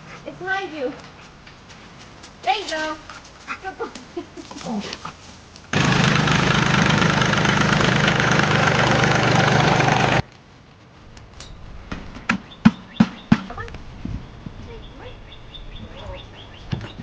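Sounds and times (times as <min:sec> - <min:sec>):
engine idling: 0:05.7 - 0:10.2.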